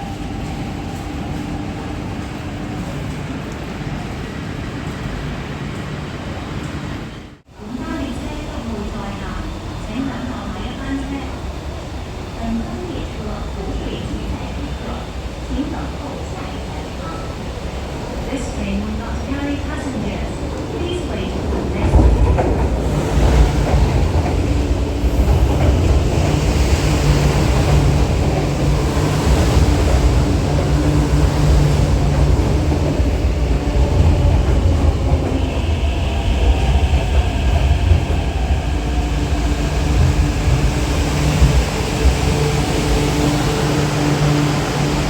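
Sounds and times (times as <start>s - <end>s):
metro train rumbling: 0.0s - 45.0s.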